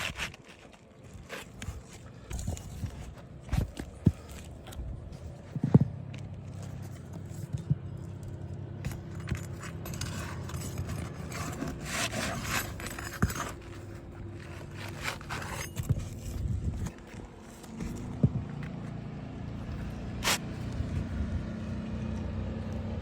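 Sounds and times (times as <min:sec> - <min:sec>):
shingle scraping on roof: 0:09.4 - 0:18.1.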